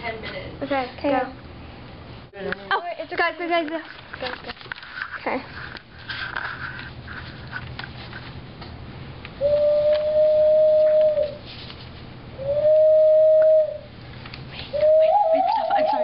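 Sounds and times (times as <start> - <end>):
person making bird call: 14.8 - 16.0.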